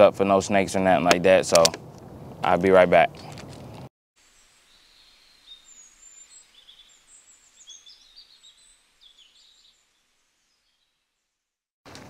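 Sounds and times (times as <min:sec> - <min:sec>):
faint birds chirping: 0:04.2 - 0:11.6.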